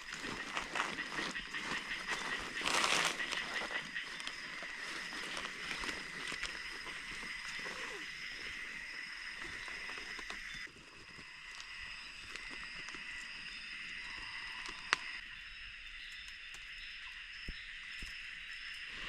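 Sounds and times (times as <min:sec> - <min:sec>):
insects calling: 0:00.0 - 0:19.0
small ticks: 0:09.4 - 0:15.2, 0:15.9 - 0:18.9.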